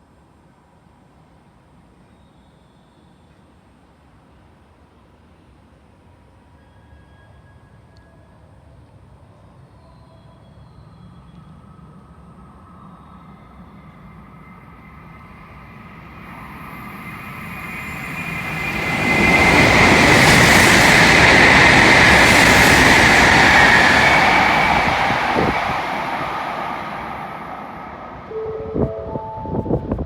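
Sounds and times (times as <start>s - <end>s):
high-speed train passing: 11.5s - 30.0s.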